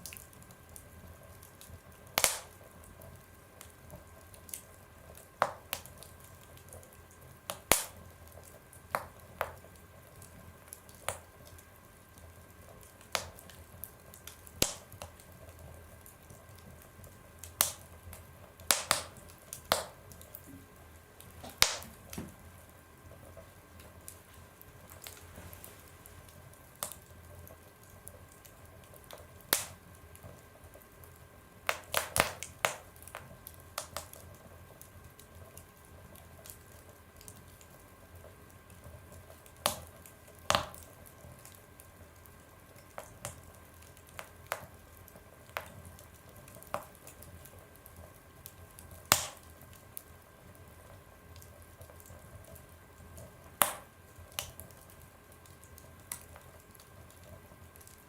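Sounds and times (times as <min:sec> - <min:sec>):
faint steady hiss: 0:00.0 - 0:58.0
wood fire crackling and popping: 0:00.0 - 0:58.0.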